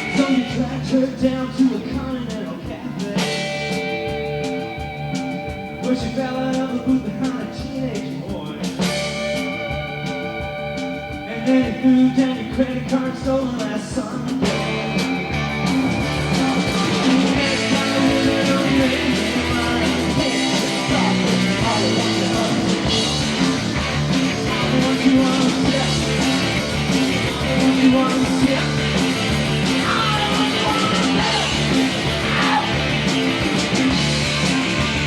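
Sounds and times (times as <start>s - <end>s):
live rock band playing: 0.0s - 35.0s.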